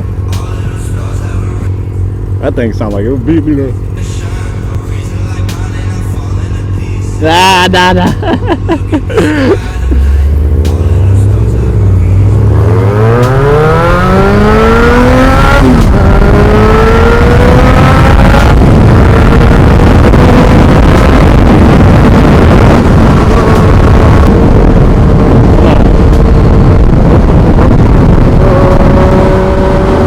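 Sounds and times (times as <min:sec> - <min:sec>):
motorcycle engine accelerating: 0:00.0 - 0:30.0
wind rush on microphone: 0:09.8 - 0:30.0.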